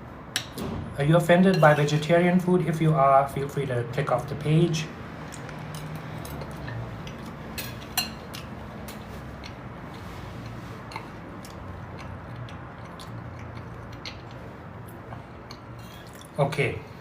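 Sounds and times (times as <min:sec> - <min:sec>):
chewing clicks: 0:05.2 - 0:07.4, 0:10.4 - 0:16.4.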